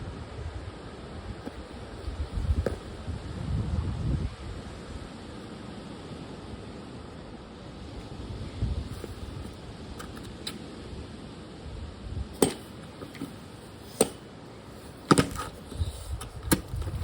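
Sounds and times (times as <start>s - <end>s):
wind buffeting microphone: 0.0s - 5.0s, 14.7s - 17.0s
sharp knocks: 12.4s - 14.2s, 14.8s - 16.9s.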